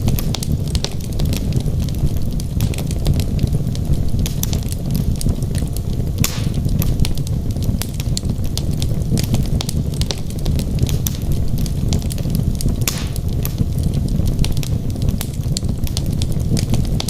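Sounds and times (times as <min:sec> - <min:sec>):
logs crackling in fireplace: 0:00.0 - 0:17.0
hissing pop: 0:06.2 - 0:06.7, 0:12.8 - 0:13.3.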